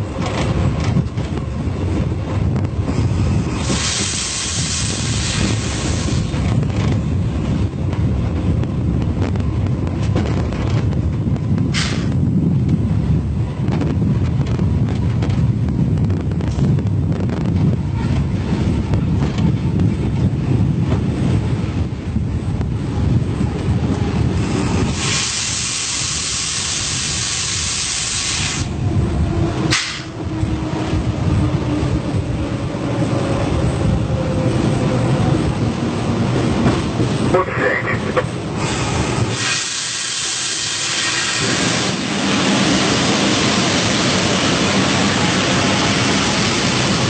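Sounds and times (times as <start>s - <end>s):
train rumbling: 0.0s - 47.0s
wind on microphone: 0.0s - 47.0s
loud hiss of air: 3.1s - 6.4s, 11.7s - 12.2s, 24.5s - 28.8s, 29.7s - 30.2s, 38.6s - 42.1s.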